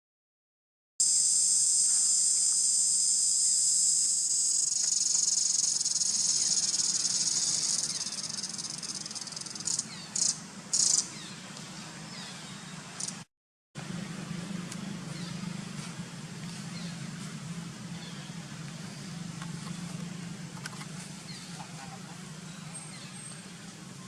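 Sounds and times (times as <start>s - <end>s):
short insect bursts: 1.0s - 11.1s
insects droning: 1.0s - 11.2s.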